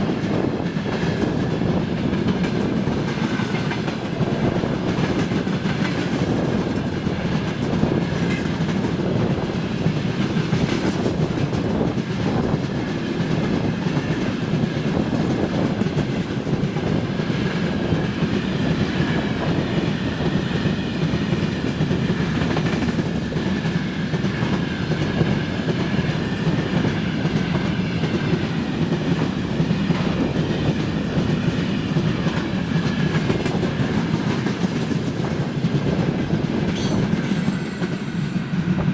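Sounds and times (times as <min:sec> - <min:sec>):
train wheels clattering over rail joints: 0:00.1 - 0:38.8
high wheel squeal: 0:36.8 - 0:38.7.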